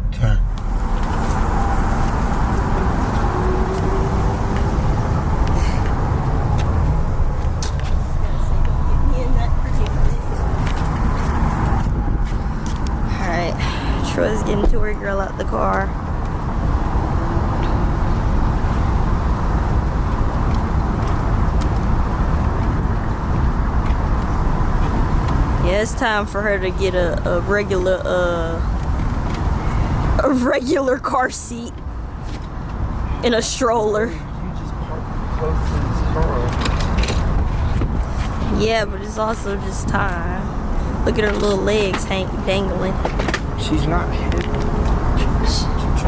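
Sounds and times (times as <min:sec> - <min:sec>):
tyre and wind noise: 0:00.0 - 0:15.0, 0:15.8 - 0:25.7, 0:27.0 - 0:30.2, 0:35.1 - 0:39.0
car engine rumble: 0:00.0 - 0:46.0.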